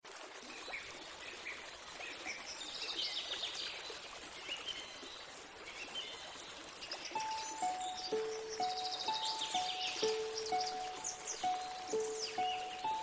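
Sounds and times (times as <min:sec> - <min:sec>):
steady hiss of running water: 0:00.0 - 0:13.0
small birds chirping: 0:05.7 - 0:13.0.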